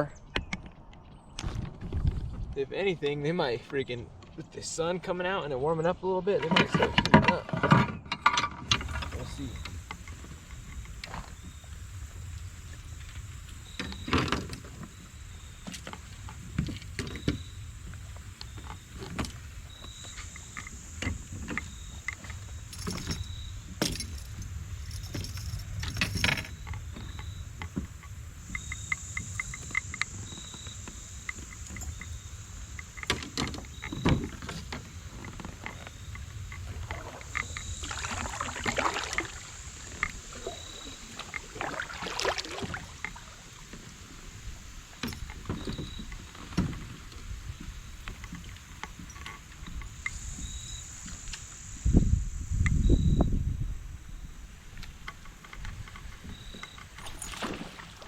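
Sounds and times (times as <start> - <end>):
gear knocking against kayak hull: 15.6 - 43.2.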